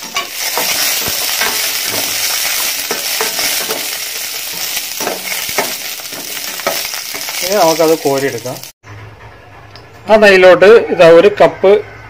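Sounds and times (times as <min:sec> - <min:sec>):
metal spoon scraping pan: 0:00.0 - 0:07.7
nuts sizzling in ghee: 0:00.0 - 0:08.8.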